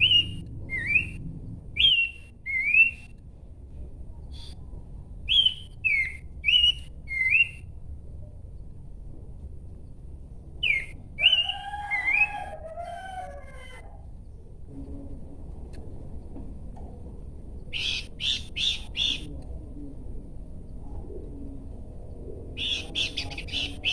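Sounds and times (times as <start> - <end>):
bird whistling notes: 0.0 - 1.2, 1.8 - 3.2, 5.3 - 7.7, 10.6 - 12.5.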